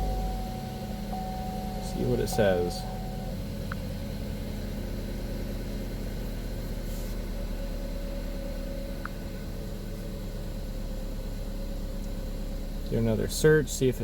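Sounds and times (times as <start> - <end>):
short faint beeps: 0.0 - 3.4
car engine idling: 0.0 - 14.0.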